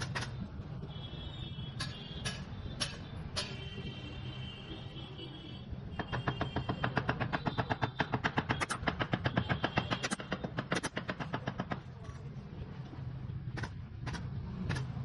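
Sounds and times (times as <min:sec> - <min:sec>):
rapid mechanical clicking: 0:06.0 - 0:12.0, 0:13.5 - 0:15.0.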